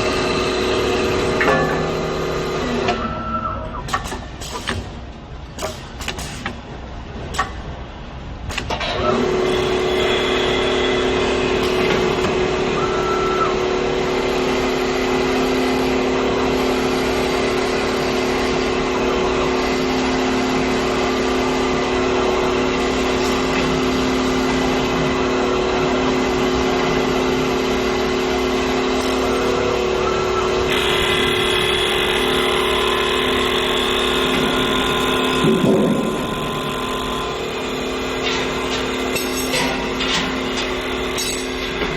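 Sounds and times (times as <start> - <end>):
wood lathe machine hum: 9.1 - 41.9.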